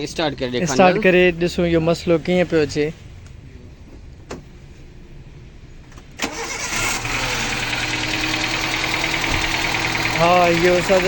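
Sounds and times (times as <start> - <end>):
engine idling rough: 6.3 - 11.0.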